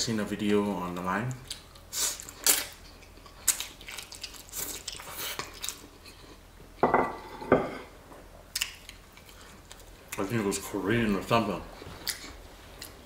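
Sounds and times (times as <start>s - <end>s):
wet chewing and smacking: 1.4s - 6.2s.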